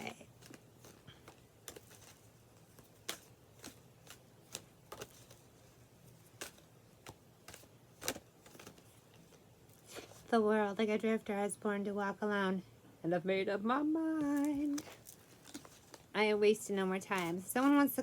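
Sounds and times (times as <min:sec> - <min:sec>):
cards being shuffled: 0:00.0 - 0:10.3, 0:14.2 - 0:16.1, 0:17.1 - 0:18.0.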